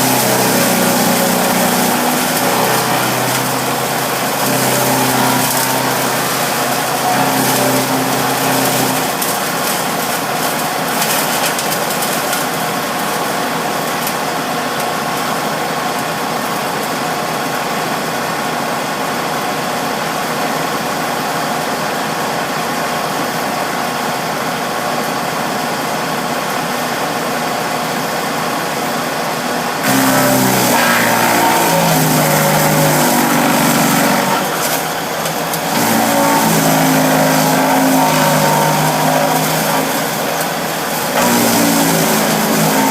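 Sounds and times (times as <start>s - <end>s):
wood chipper engine running: 0.0s - 42.9s.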